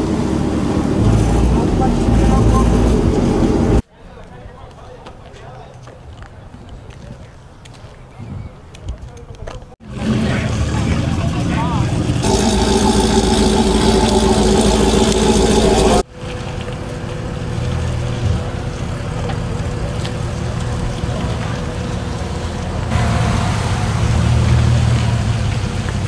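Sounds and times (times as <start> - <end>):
vehicle engines running: 0.0 - 3.8, 9.8 - 26.0.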